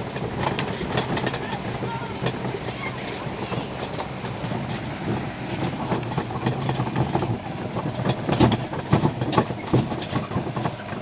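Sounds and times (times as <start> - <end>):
carts clattering and knocking: 0.0 - 11.0
tractor engine running: 0.0 - 11.0.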